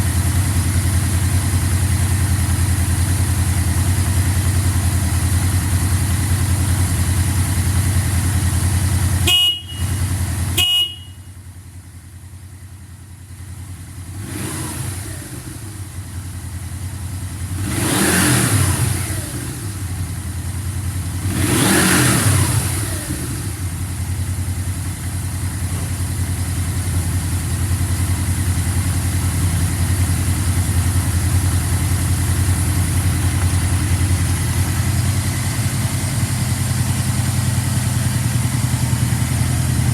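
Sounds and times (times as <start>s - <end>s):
motorcycle engine idling: 0.0s - 39.9s
short high beeps: 9.3s - 10.0s
engine revving: 14.1s - 15.8s, 17.5s - 19.9s, 21.1s - 23.7s.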